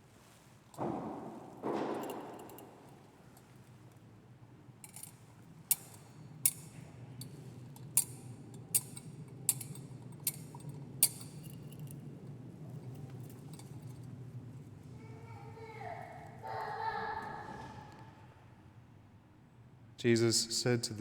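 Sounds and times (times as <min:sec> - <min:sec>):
censer chains clinking: 0:00.8 - 0:04.0, 0:04.8 - 0:15.0.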